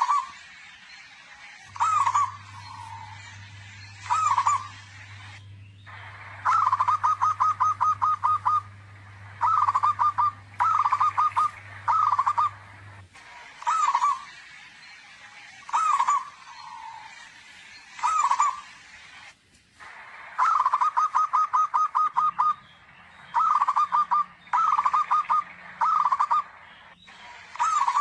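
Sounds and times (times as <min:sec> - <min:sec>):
low steady hum: 0:00.0 - 0:28.0
dove cooing: 0:01.7 - 0:13.0, 0:13.6 - 0:14.3, 0:15.7 - 0:16.8, 0:18.0 - 0:18.6, 0:20.4 - 0:22.6, 0:23.3 - 0:26.6, 0:27.5 - 0:28.0.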